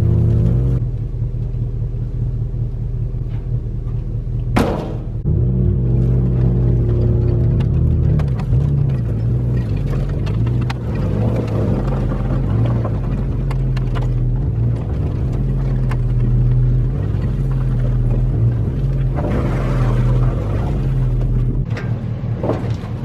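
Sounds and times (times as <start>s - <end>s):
skid steer engine running: 0.0s - 23.0s
faint clicks and knocks: 6.3s - 19.3s.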